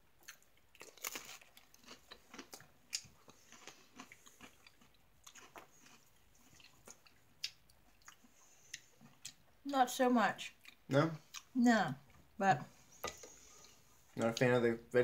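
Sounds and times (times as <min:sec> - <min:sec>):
person chewing crunchy cracker: 0:00.1 - 0:09.5.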